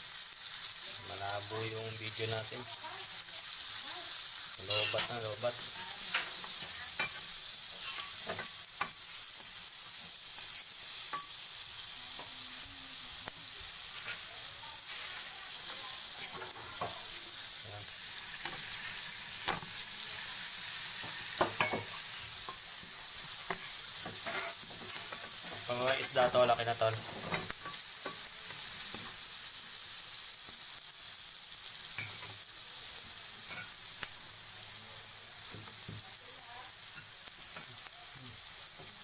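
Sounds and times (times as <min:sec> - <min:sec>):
onions sizzling in a pan: 0:00.0 - 0:39.0
spoon scraping a pan: 0:04.6 - 0:12.4, 0:13.3 - 0:17.2, 0:18.1 - 0:29.2, 0:31.9 - 0:32.4, 0:33.4 - 0:33.8.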